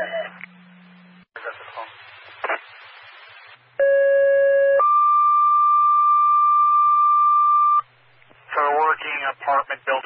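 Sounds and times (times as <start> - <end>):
radio static: 1.4 - 3.6, 8.5 - 10.0.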